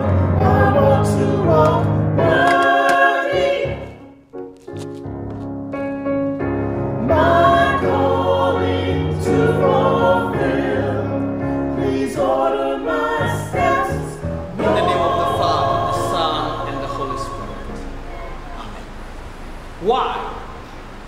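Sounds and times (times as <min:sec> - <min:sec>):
choir singing: 0:00.0 - 0:04.2, 0:07.0 - 0:19.2
held low notes: 0:09.3 - 0:21.0.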